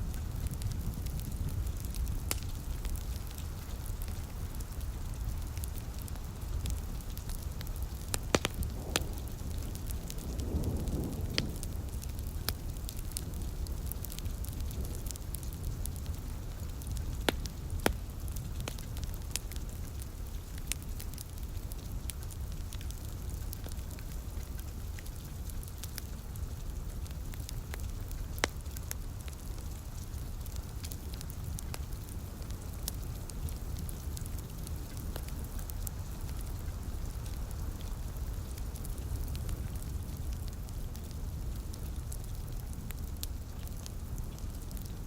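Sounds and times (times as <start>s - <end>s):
light rain hiss: 0.0s - 45.0s
wood fire crackling and popping: 0.0s - 45.0s.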